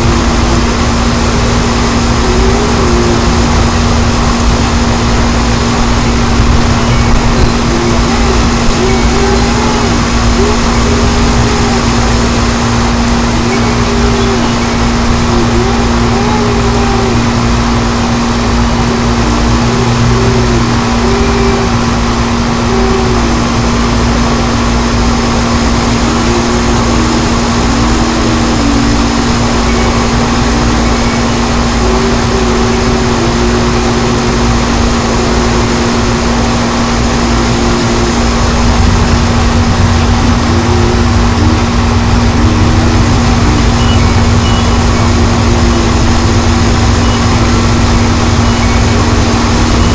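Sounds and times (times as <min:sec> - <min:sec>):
steady hum: 0:00.0 - 0:49.9
faint wavering whistle-like tone: 0:37.3 - 0:49.9.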